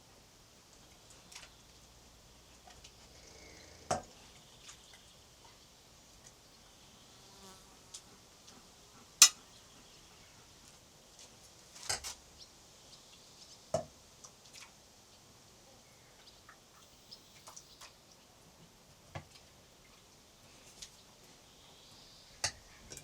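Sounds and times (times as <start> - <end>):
high hum of insects: 1.0 - 11.2, 16.7 - 17.9.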